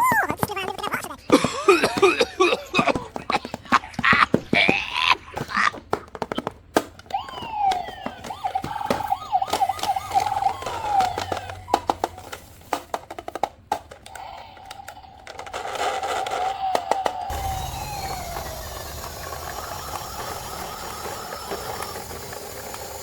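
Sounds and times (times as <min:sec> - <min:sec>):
plastic toy clicks and taps: 0:00.0 - 0:23.0
toy electronic siren wailing: 0:07.1 - 0:12.5, 0:14.1 - 0:23.0.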